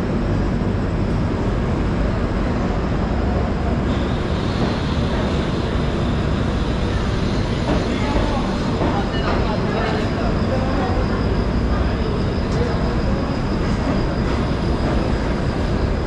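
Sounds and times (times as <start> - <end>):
train coach rumbling on rails: 0.0 - 16.0.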